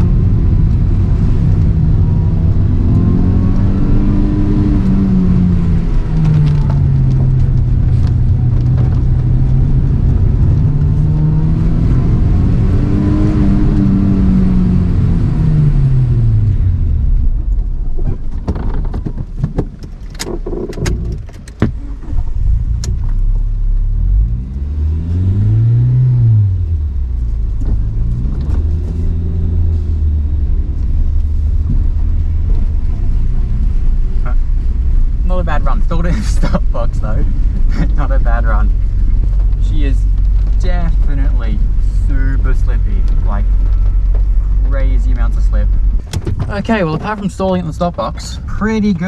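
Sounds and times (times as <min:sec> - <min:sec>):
car engine revving: 0:00.0 - 0:19.0, 0:20.2 - 0:49.0
sharp knocks and clicks: 0:17.5 - 0:21.8, 0:45.7 - 0:47.6.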